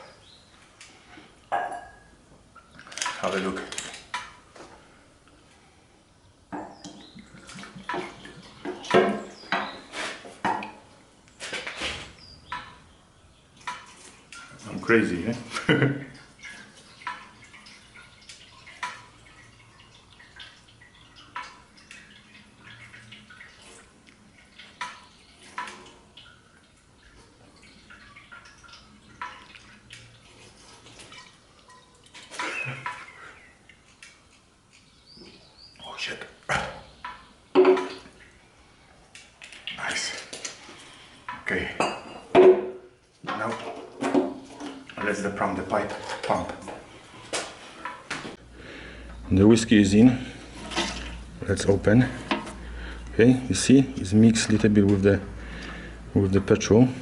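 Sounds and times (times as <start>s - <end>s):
liquid dripping and trickling: 0.0s - 57.0s
liquid glugging from a bottle: 6.6s - 10.9s, 13.6s - 34.4s.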